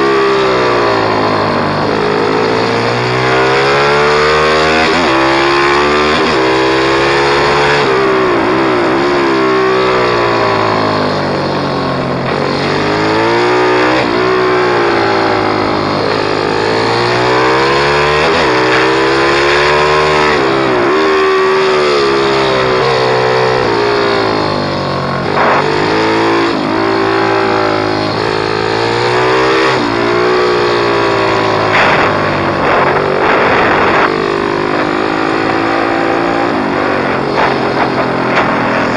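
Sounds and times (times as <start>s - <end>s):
pit bike engine revving: 0.0s - 38.9s.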